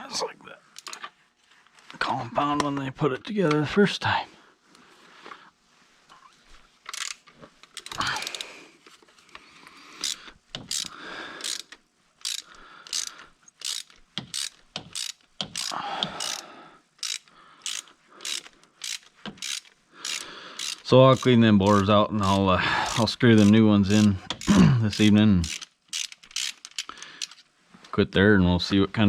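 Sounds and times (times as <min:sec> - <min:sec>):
ratchet wrench clicking: 0:00.8 - 0:01.0, 0:06.9 - 0:08.5, 0:10.0 - 0:27.4.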